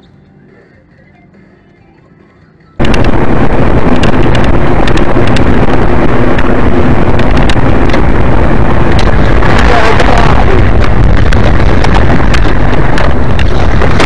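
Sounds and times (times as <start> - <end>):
crackles: 2.8 - 14.0
road and wind rumble: 2.8 - 14.0.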